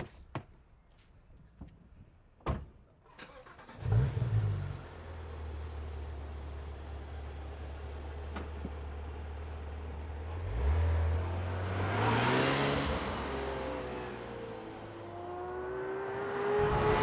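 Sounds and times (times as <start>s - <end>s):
car engine idling and revving: 3.3s - 17.0s
car driving past: 10.4s - 17.0s.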